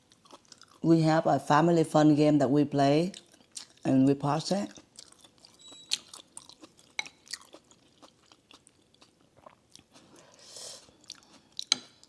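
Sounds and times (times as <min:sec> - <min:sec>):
person chewing noodle soup: 0:00.0 - 0:00.8, 0:03.1 - 0:03.9, 0:04.7 - 0:12.0.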